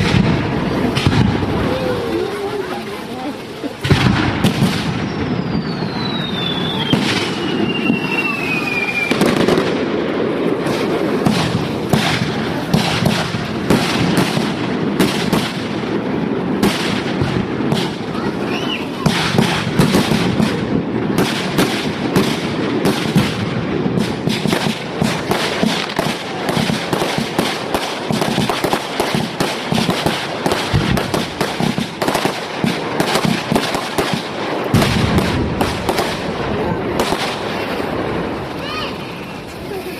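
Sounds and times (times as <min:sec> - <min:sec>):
fireworks bangs and crackle: 0:00.0 - 0:39.9
falling firework whistle: 0:04.0 - 0:09.7, 0:18.2 - 0:20.0.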